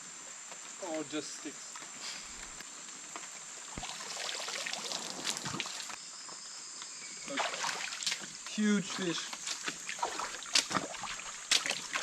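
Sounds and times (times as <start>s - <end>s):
insects droning: 0.0s - 12.0s
rustling or splashing: 3.3s - 6.0s, 7.3s - 12.0s.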